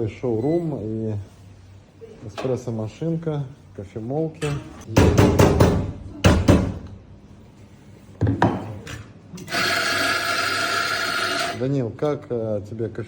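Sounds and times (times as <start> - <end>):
espresso grinder whirring: 9.4 - 11.6.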